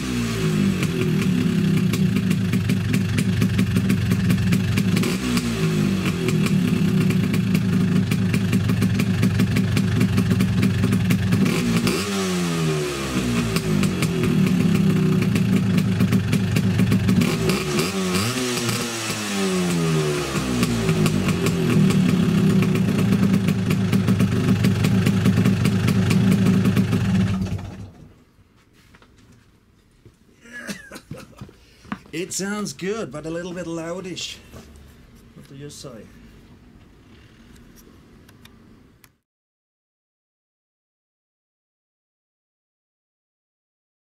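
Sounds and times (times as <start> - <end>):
scooter engine running hard: 0.0 - 28.0.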